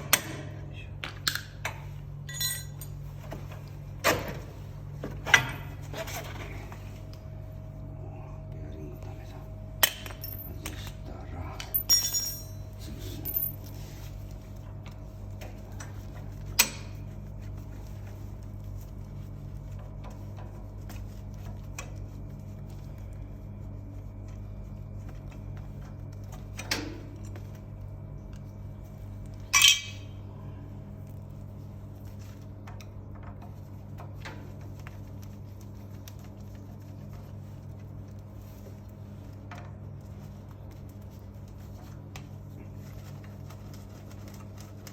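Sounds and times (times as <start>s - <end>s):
steady low hum: 0.0s - 44.9s
metallic clinks and knocks of tools: 2.3s - 3.0s, 9.8s - 10.9s, 11.6s - 13.8s.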